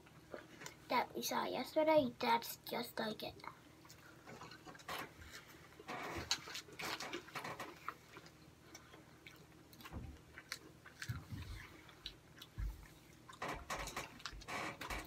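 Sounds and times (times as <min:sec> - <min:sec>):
person chewing food: 0:03.8 - 0:15.0.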